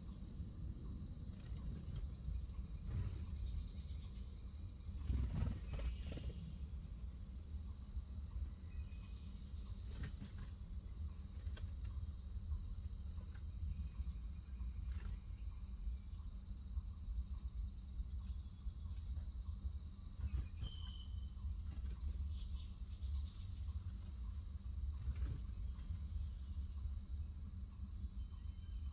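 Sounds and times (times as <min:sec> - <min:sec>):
insects high-pitched drone: 0:00.0 - 0:28.9
low outdoor rumble: 0:00.0 - 0:28.9
short insect chirps: 0:13.3 - 0:22.5.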